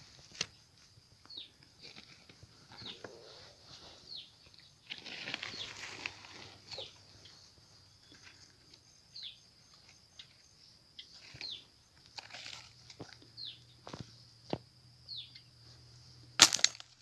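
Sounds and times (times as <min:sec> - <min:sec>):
rustling in wet leaves: 0:04.8 - 0:07.0, 0:12.2 - 0:13.2.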